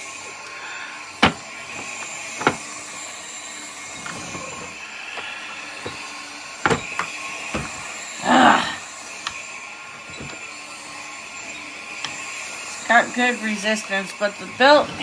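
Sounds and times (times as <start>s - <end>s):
plastic parts clicking and knocking: 1.2s - 2.6s, 6.6s - 7.8s.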